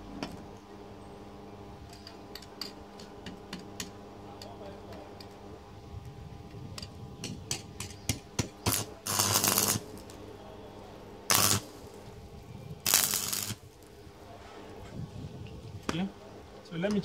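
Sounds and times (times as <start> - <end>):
low welder hum: 0.0 - 17.0
arc welding crackle: 6.0 - 14.9.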